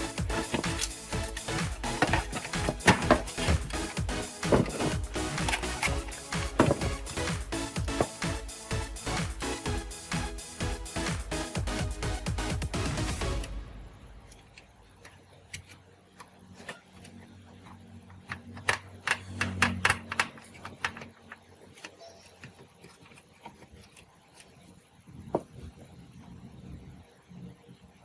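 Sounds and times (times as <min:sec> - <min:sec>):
faint low hum: 0:13.2 - 0:28.0.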